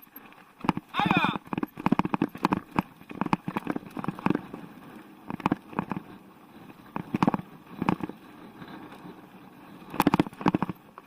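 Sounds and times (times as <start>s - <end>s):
mountain bike clattering: 0.0s - 11.0s
sharp knocks and rattles: 0.6s - 4.5s, 9.9s - 11.0s.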